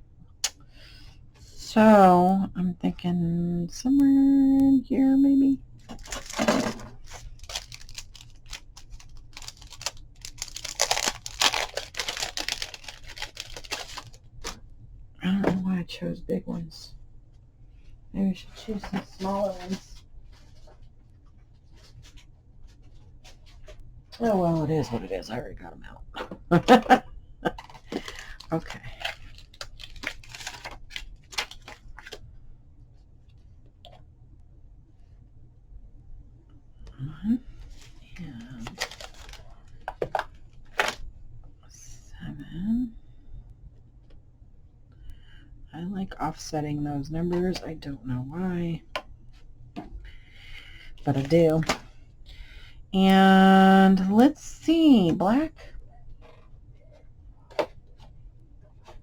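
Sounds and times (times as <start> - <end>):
paper rustling and crinkling: 5.8 - 14.6, 18.7 - 23.8, 26.6 - 32.2, 37.6 - 41.0.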